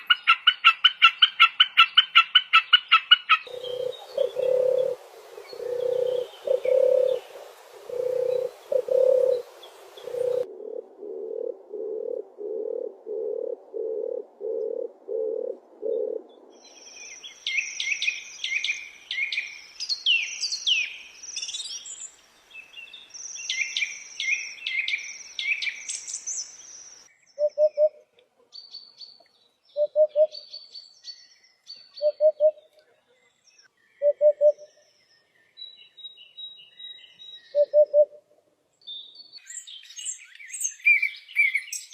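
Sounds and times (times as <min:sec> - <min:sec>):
songbird singing: 0:00.0 - 0:41.9
short low bird calls: 0:03.4 - 0:19.6
bird repeating low notes: 0:03.5 - 0:17.9.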